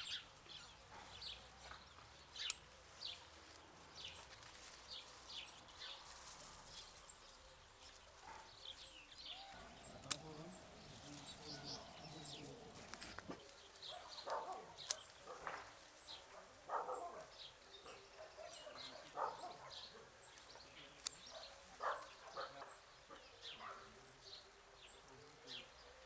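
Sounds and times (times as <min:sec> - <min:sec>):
small birds chirping: 0:00.0 - 0:26.0
sharp clicks: 0:09.9 - 0:10.6, 0:14.2 - 0:15.2.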